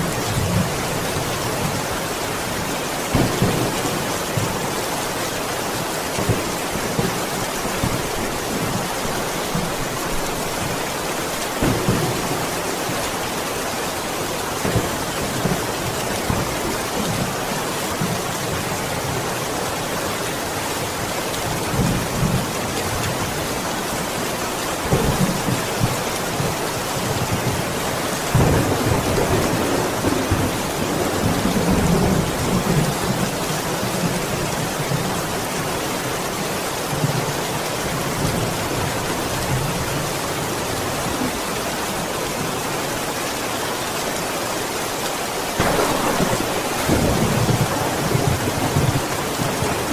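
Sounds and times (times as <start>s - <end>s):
heavy rain: 0.0s - 49.9s
thunder rumbling: 3.1s - 4.8s, 11.5s - 13.1s, 45.6s - 49.9s.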